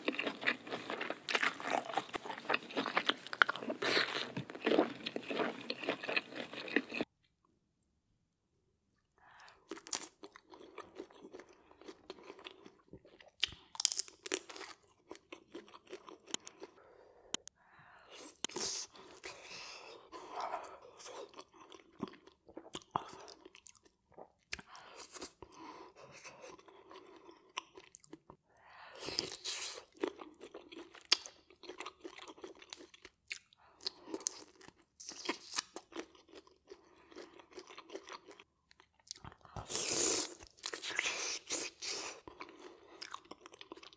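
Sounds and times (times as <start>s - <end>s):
wet chewing and biting: 0.0s - 7.1s.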